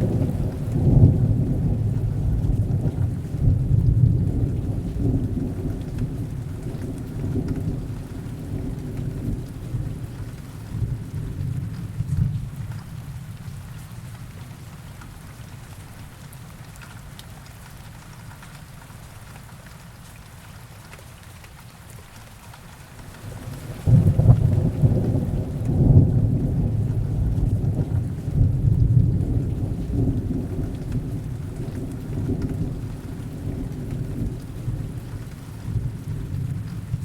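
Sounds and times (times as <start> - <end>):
thunder rumbling: 0.0 - 12.4, 23.1 - 37.0
heavy rain: 0.0 - 37.0.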